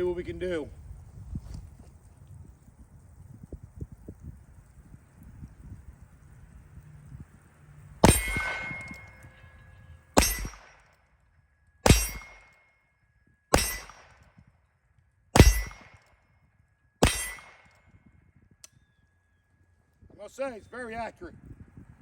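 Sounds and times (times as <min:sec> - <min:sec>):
revolver shots with ringing: 0:08.0 - 0:09.6, 0:10.2 - 0:11.0, 0:11.8 - 0:12.7, 0:13.5 - 0:14.5, 0:15.4 - 0:16.2, 0:17.0 - 0:18.0.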